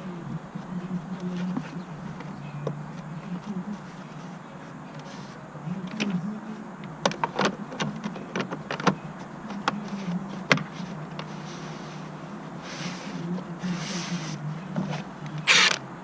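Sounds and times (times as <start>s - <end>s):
steady low hum: 0.0s - 16.0s
sharp clicks and knocks: 6.8s - 11.3s.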